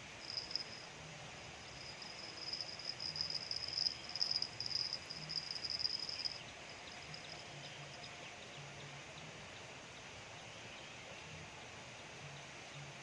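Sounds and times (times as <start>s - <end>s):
insect trilling: 0.0s - 8.0s
faint chirps: 0.0s - 9.0s.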